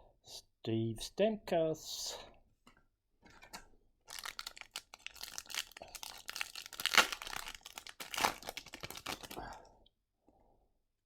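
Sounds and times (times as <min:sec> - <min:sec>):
foil wrapper tearing and crinkling: 0:04.1 - 0:09.4.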